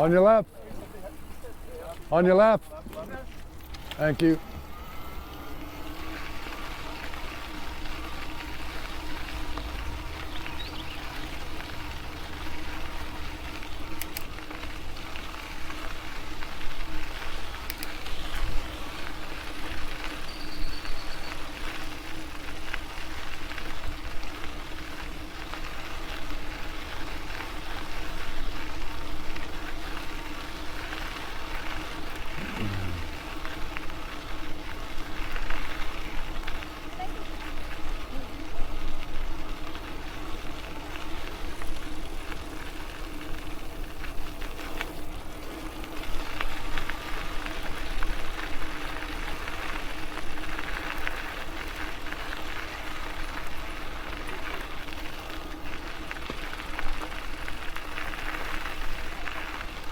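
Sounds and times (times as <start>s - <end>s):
electric motor hum: 3.2s - 20.6s, 30.9s - 34.2s
faint ticks: 15.8s - 21.3s.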